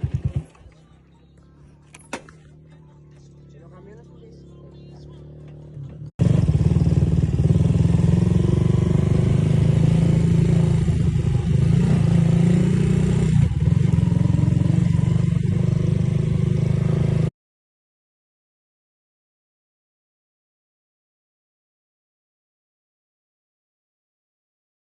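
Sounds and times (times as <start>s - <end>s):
motorcycle engine running: 0.0s - 17.3s.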